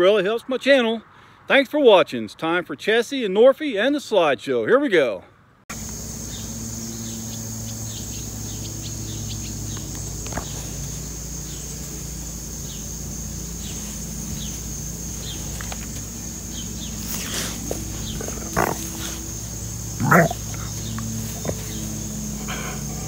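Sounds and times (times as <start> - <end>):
high-pitched insect drone: 5.7 - 23.0
bird chirps: 5.8 - 23.0.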